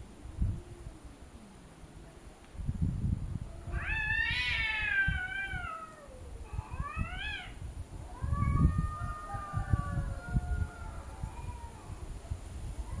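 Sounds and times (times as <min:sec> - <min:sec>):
cats yowling: 0:03.6 - 0:12.0.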